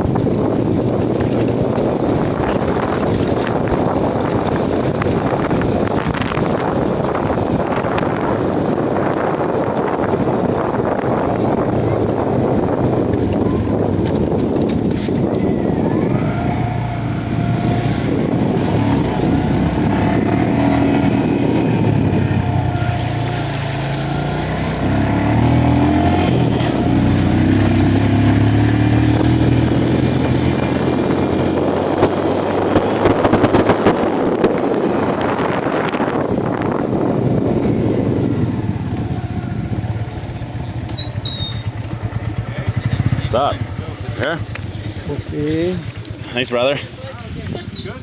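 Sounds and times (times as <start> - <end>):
knocks and rattles: 0.0 - 15.6
motorcycle engine revving: 0.0 - 48.0.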